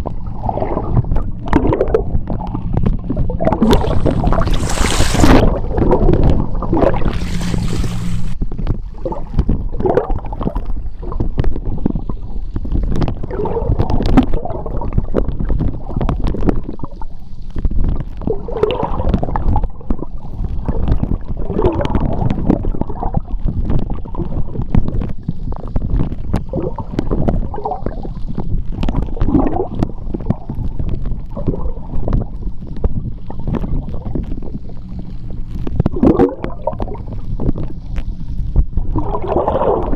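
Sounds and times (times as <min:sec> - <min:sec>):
low steady hum: 0:00.0 - 0:09.8, 0:29.9 - 0:39.9
gurgling bubbles: 0:00.0 - 0:17.2, 0:25.8 - 0:39.9
underwater churning rumble: 0:00.0 - 0:39.9
underwater clicks: 0:01.5 - 0:08.4.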